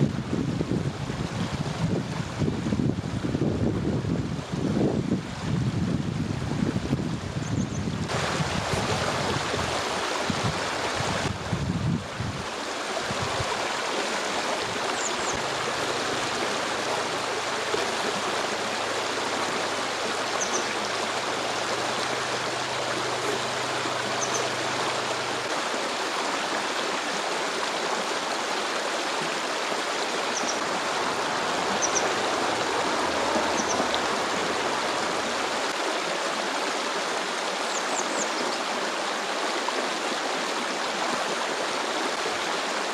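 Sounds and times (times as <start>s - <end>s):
wind buffeting microphone: 0.0s - 13.7s
stream water flowing: 0.0s - 42.9s.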